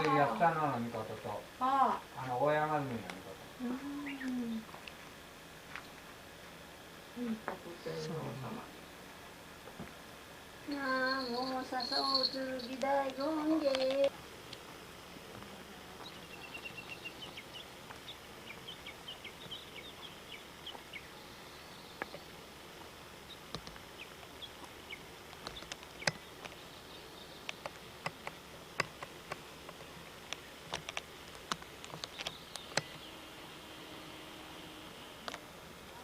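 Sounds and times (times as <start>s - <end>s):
sharp clicks: 25.3s - 26.6s, 27.4s - 33.1s.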